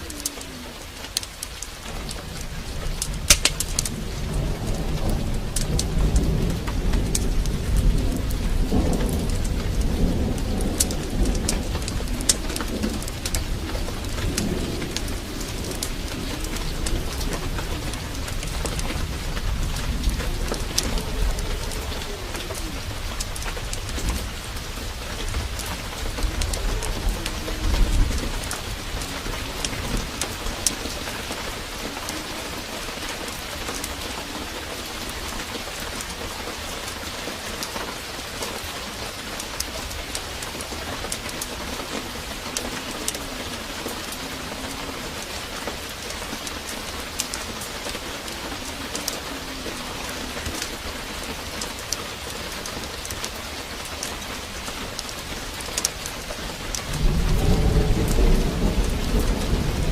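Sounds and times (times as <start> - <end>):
heavy rain pouring: 0.0 - 59.9
thunder rumble: 0.0 - 59.9
sharp ticks: 3.0 - 4.0.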